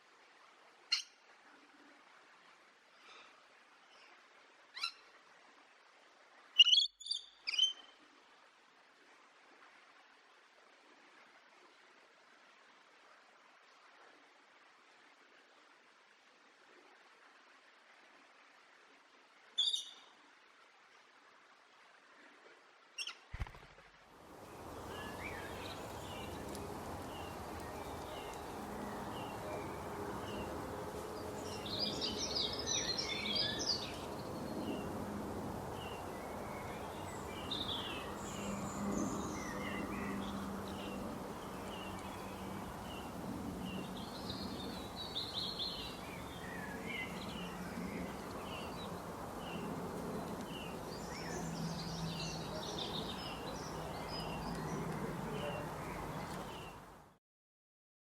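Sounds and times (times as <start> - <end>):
birds singing and chirping: 31.1 - 34.8.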